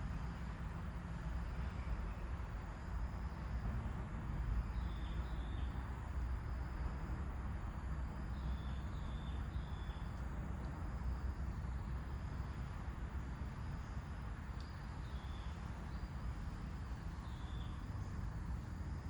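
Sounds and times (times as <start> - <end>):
small birds chirping: 14.6 - 16.2, 17.0 - 18.1.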